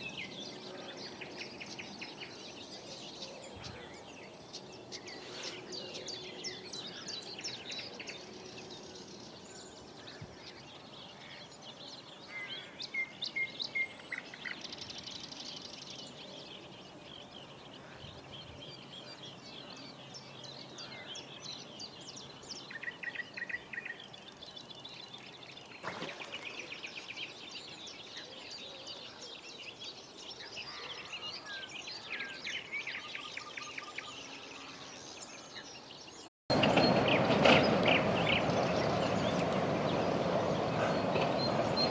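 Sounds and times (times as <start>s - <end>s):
wild birds singing and calling: 0.0s - 41.9s.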